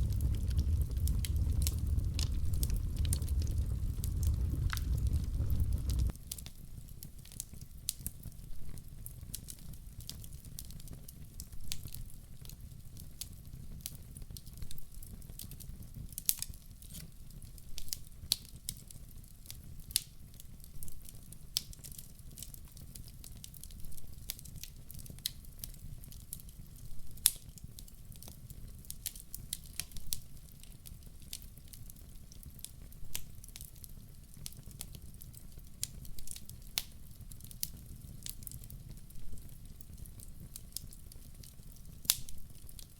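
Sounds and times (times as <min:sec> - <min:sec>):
low rumble of flames: 0:00.0 - 0:07.4
wood fire crackling and popping: 0:00.0 - 0:42.9.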